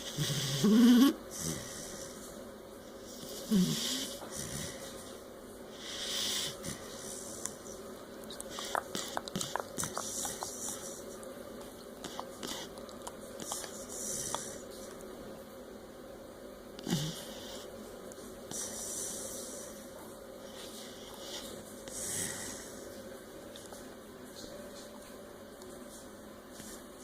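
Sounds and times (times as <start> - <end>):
dog snorting: 0.0 - 2.1, 8.3 - 14.7, 16.8 - 17.7
dog snoring: 0.0 - 2.2, 3.0 - 5.1, 5.7 - 7.5, 8.4 - 11.0, 11.6 - 14.6, 16.8 - 17.7, 20.5 - 22.8.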